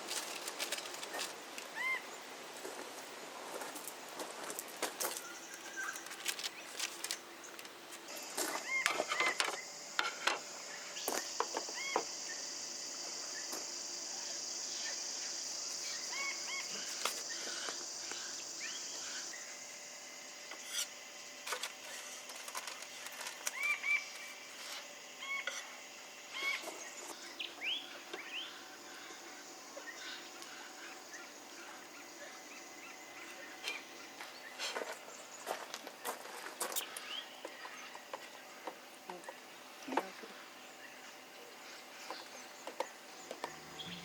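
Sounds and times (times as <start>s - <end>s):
birds chirping: 5.0s - 20.6s, 23.4s - 44.0s.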